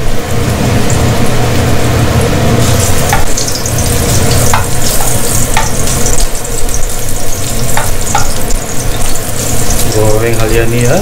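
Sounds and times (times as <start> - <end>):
ginger sizzling in hot oil: 0.0 - 11.0
spatula knocking against pan: 4.5 - 5.9, 7.7 - 8.4.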